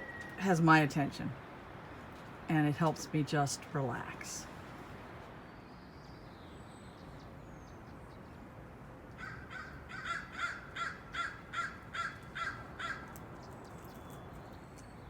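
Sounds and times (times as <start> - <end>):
steady outdoor hiss: 0.0 - 15.0
bird cawing: 9.2 - 13.2.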